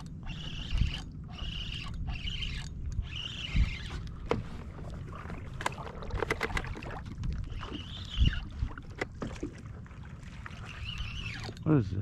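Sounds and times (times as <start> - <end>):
wind rumbling on microphone: 0.0 - 9.8.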